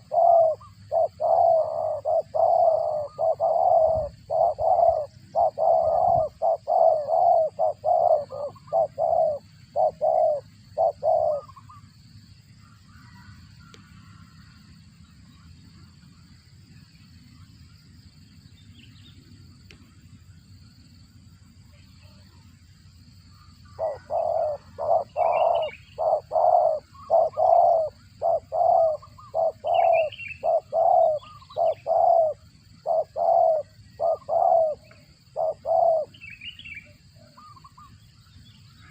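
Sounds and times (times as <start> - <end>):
dove cooing rapidly: 0.0 - 11.9, 23.6 - 38.0
high bird chirps: 23.7 - 32.4.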